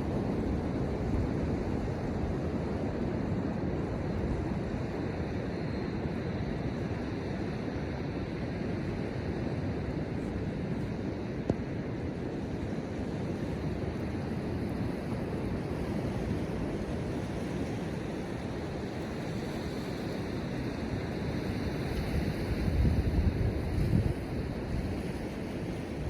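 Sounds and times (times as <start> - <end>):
wind buffeting microphone: 21.0 - 26.0.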